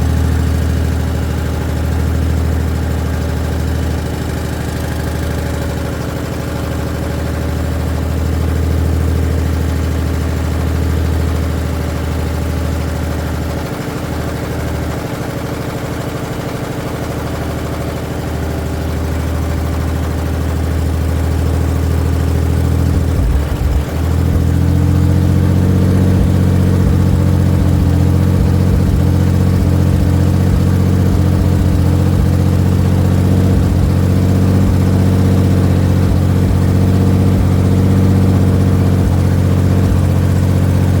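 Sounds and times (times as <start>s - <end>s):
loud raw engine running: 0.0s - 41.0s.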